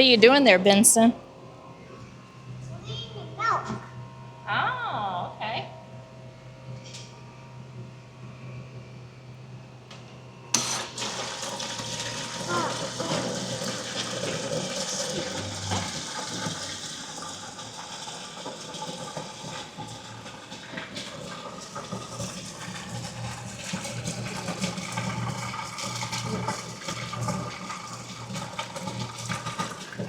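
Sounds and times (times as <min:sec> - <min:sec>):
low machine hum: 0:00.0 - 0:30.0
water running and splashing: 0:11.3 - 0:20.2.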